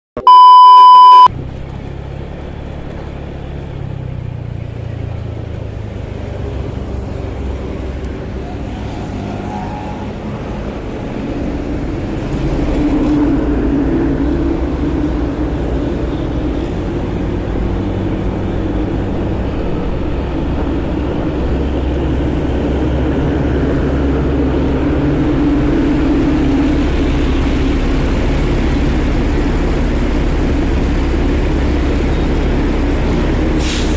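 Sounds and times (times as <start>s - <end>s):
loud beep tone: 0.2s - 1.3s
traffic noise: 0.2s - 33.9s
wind: 0.2s - 33.9s.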